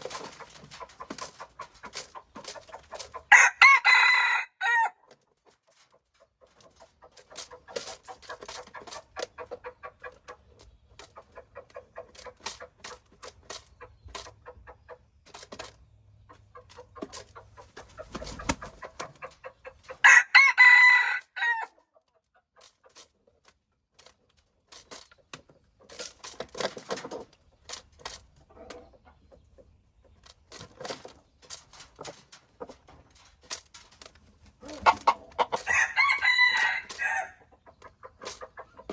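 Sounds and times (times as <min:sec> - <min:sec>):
chickens clucking: 0:00.0 - 0:38.9
rooster crowing: 0:03.3 - 0:05.0, 0:20.0 - 0:21.7, 0:35.6 - 0:37.4.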